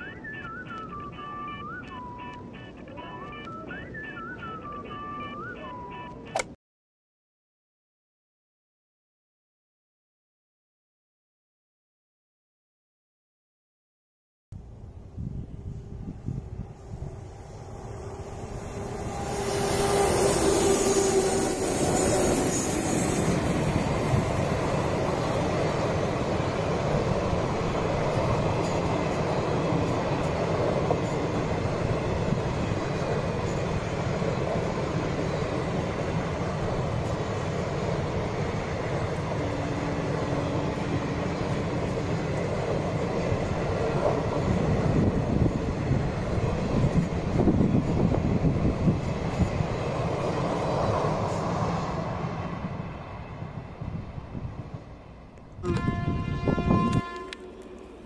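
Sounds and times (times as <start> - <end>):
train wheels rumbling on track: 14.6 - 58.0
locomotive hissing rush: 14.9 - 55.3.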